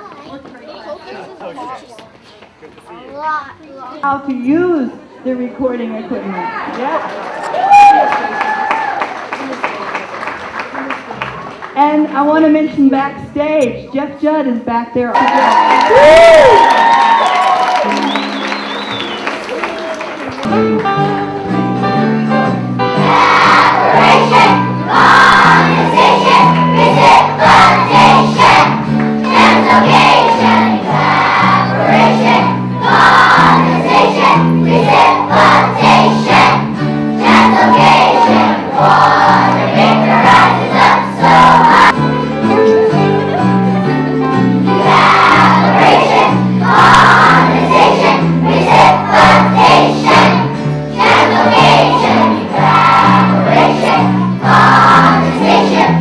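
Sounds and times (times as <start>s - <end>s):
instrumental accompaniment: 17.6s - 56.0s
children singing: 22.9s - 42.0s, 44.7s - 56.0s.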